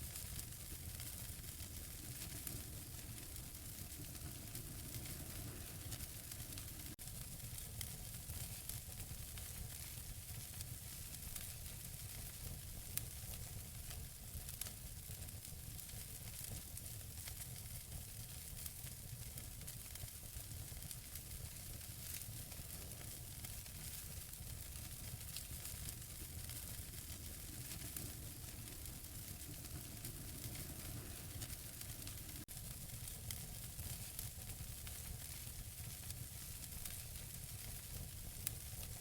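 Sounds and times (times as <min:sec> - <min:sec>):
fire crackles and pops: 0:00.0 - 0:39.0
wood fire burning: 0:00.0 - 0:39.0.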